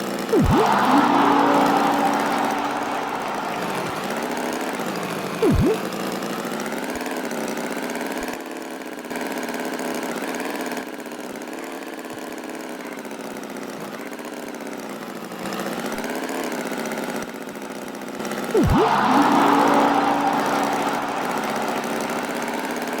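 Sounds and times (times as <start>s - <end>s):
loud pitch swoop: 0.3s - 5.9s, 18.6s - 23.0s
cartoon tractor engine running: 0.3s - 6.0s, 18.5s - 23.0s.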